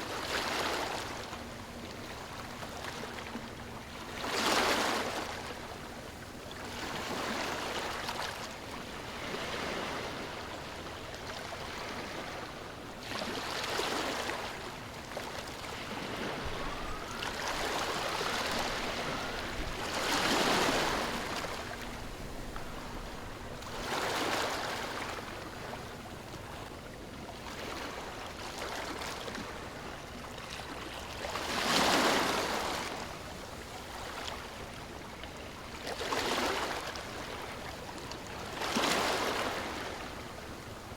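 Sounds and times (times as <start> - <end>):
waves breaking: 6.6 - 26.7, 27.4 - 34.7.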